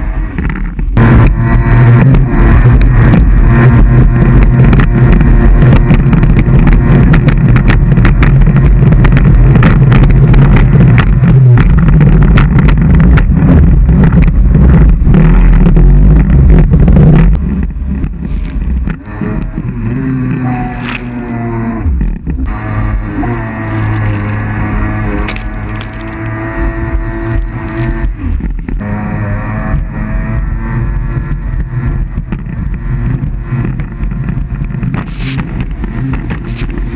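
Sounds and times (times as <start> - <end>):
jet ski engine running hard: 0.0 - 36.9
short cracks: 25.2 - 26.4.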